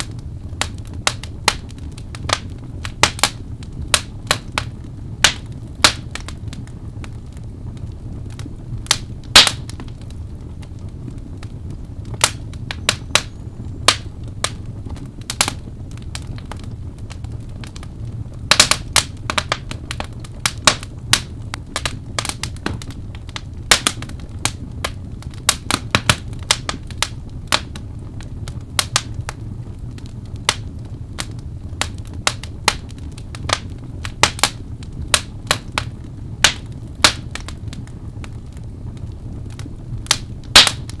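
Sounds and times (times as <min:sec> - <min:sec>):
steady low rumble: 0:00.0 - 0:41.0
wood fire crackling and popping: 0:00.0 - 0:41.0.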